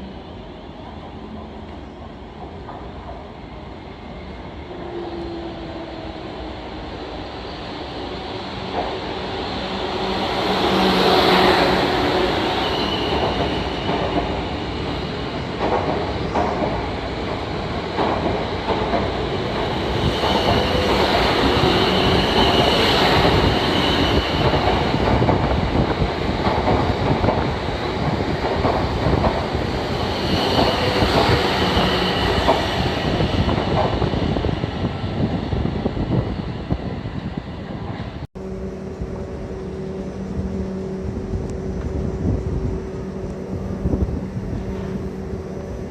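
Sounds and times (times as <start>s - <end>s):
train running on rails: 0.0s - 45.9s
high wheel squeal: 10.2s - 13.9s.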